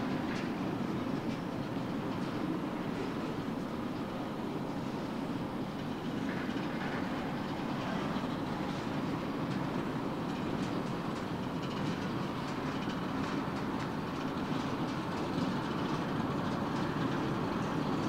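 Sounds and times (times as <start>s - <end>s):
freight cars rolling: 0.0s - 18.0s.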